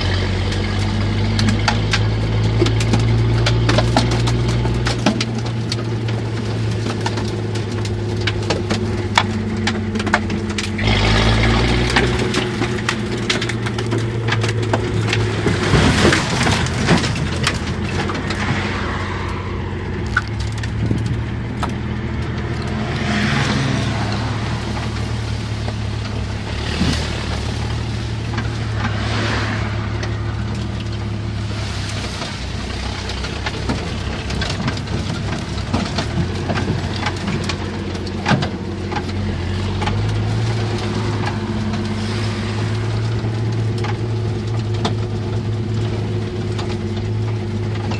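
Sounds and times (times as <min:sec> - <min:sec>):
engine running at low revs: 0:00.0 - 0:47.9
sharp knocks and crackles: 0:00.0 - 0:47.9.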